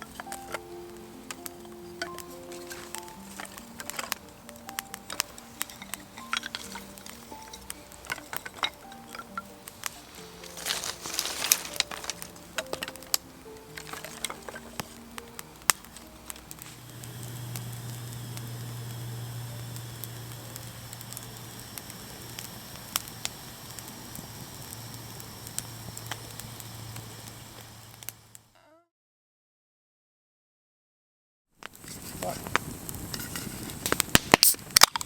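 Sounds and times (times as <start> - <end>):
background music: 0.0 - 27.1
steady low drone: 0.0 - 28.0
campfire crackling and popping: 0.0 - 28.6, 31.6 - 35.0.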